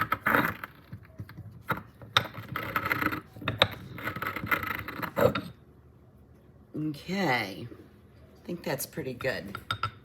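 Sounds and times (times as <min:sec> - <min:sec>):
pestle grinding in a mortar: 0:00.0 - 0:05.6.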